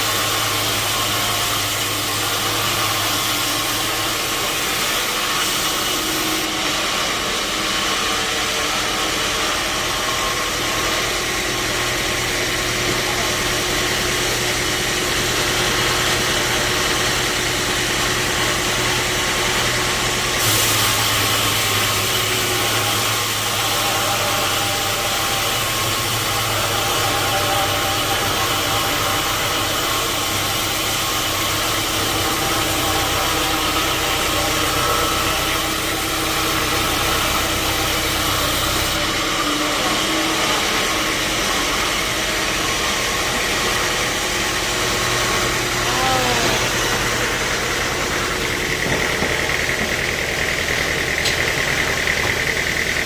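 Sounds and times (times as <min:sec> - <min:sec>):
sawing hiss: 0:00.0 - 0:14.4, 0:18.2 - 0:50.0
motor hum: 0:00.0 - 0:53.0.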